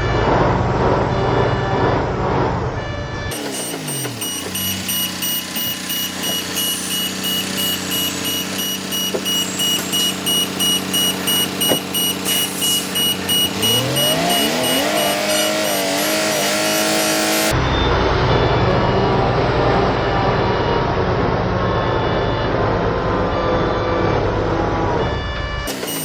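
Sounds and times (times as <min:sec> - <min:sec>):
heavy truck engine revving: 0:00.0 - 0:26.0
high-pitched beeps: 0:03.3 - 0:17.6, 0:25.7 - 0:26.0.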